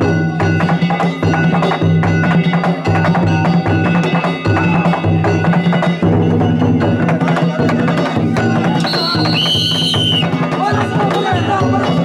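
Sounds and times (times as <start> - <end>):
taiko drum: 0.0 - 12.0
shrill whistle: 8.8 - 10.4.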